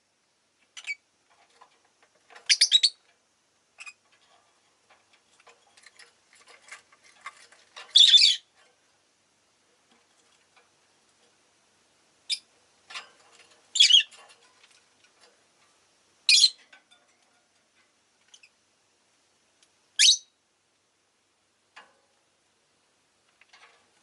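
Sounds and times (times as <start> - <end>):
lovebirds chirping shrilly: 8.0 - 8.4, 13.8 - 14.1.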